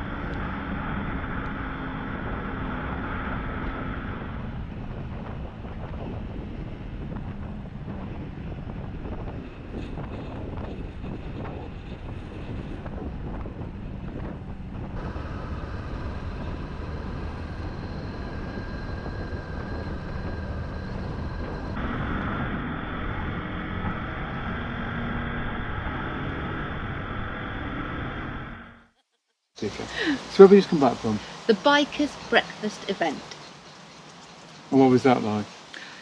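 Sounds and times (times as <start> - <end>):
motorcycle engine running: 0.0 - 25.4
wind noise on microphone: 0.0 - 28.6.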